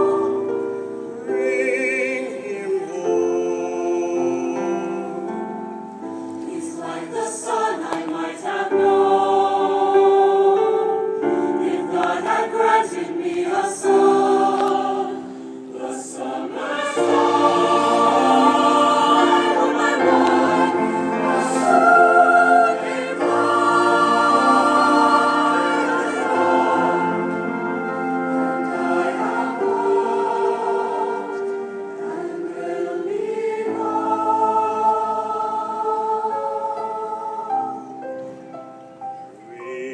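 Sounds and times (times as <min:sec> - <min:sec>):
choir singing in harmony: 0:00.0 - 0:39.9.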